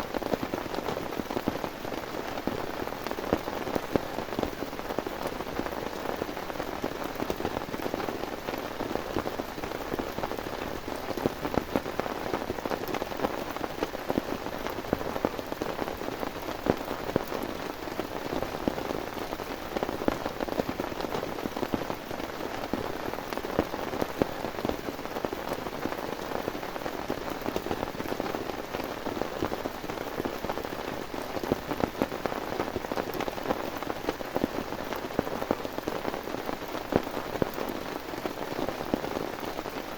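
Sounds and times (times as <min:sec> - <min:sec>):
heavy rain tapping on a surface: 0:00.0 - 0:39.9.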